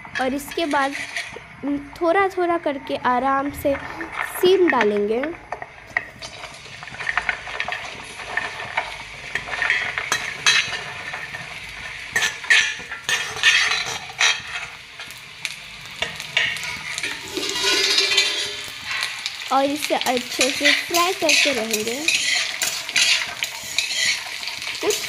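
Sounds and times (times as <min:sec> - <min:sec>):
beans sizzling in hot oil: 0:00.0 - 0:25.0
steel utensils clinking: 0:12.1 - 0:15.1, 0:16.0 - 0:19.1, 0:20.0 - 0:25.0.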